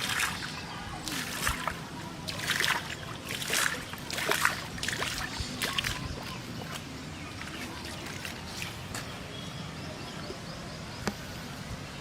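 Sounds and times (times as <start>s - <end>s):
water splashing: 0.0s - 9.3s.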